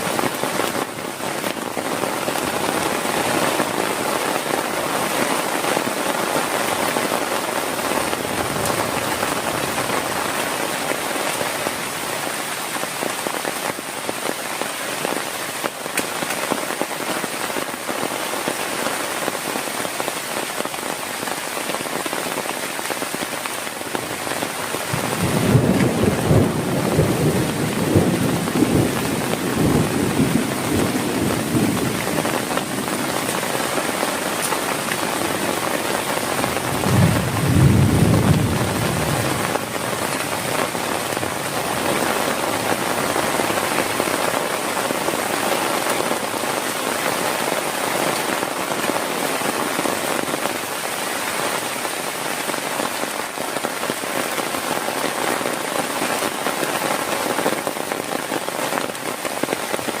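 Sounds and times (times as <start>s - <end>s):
heavy rain pouring: 0.0s - 60.0s
thunder rumbling: 24.8s - 43.7s.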